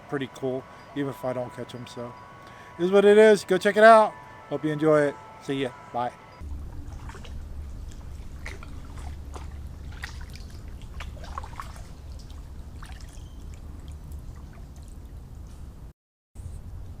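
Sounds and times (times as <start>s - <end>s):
steady low rumble: 6.2s - 17.0s
water splashing around kayak: 6.5s - 15.0s.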